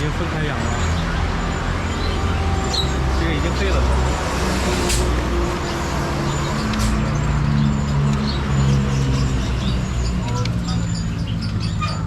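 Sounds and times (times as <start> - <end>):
vehicle engine passing: 0.0 - 11.0
birds chirping: 0.0 - 12.0
traffic rumble: 0.0 - 12.0
sharp clicks: 4.7 - 7.1.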